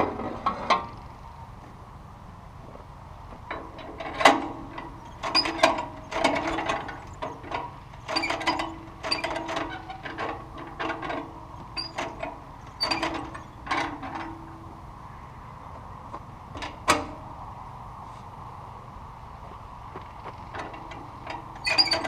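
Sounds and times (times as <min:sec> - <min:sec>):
metallic clanks and rattles: 0:03.3 - 0:14.8, 0:16.1 - 0:17.3, 0:20.0 - 0:22.0.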